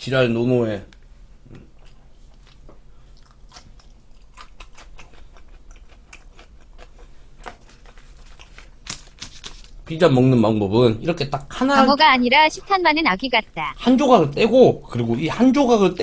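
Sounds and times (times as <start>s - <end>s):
person chewing: 1.6s - 8.8s.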